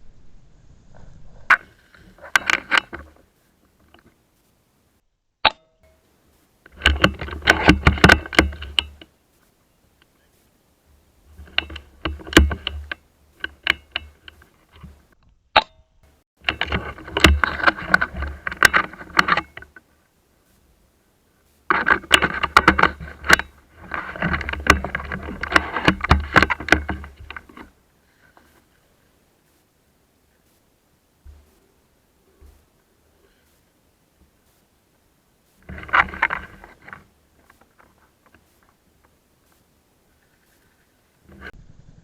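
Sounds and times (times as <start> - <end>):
clothing and gear rustling: 35.4 - 41.6.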